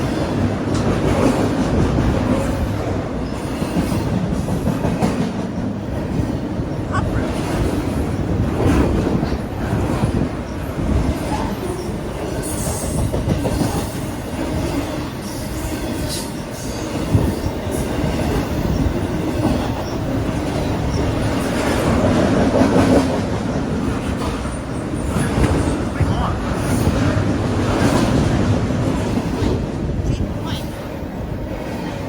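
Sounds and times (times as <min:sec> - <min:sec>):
freight train rumbling: 0:00.0 - 0:32.0
train wheel squeal: 0:15.0 - 0:22.0.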